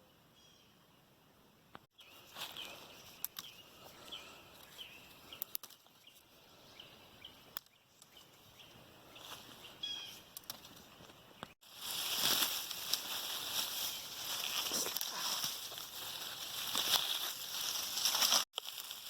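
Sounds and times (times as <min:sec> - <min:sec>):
bird chirping: 0:01.9 - 0:10.3.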